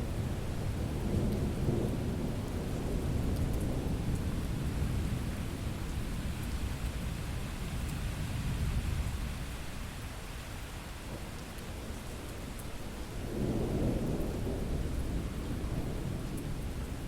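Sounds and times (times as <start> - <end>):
steady rain: 0.0 - 17.0
low rolling thunder: 13.2 - 17.0.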